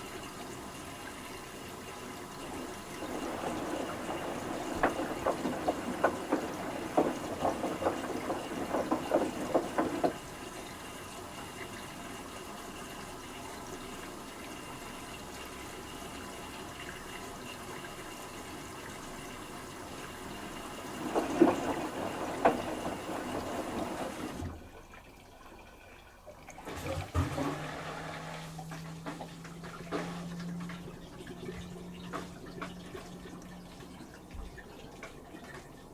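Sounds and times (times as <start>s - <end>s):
washing machine motor humming: 0.0s - 35.9s
water sloshing in washing machine drum: 0.0s - 35.9s
water rushing: 2.0s - 10.8s.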